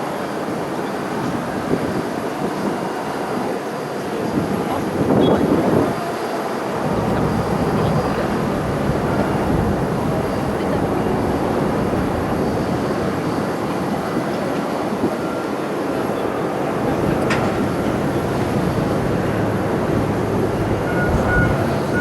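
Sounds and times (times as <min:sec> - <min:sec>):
jet engines running: 0:00.0 - 0:22.0.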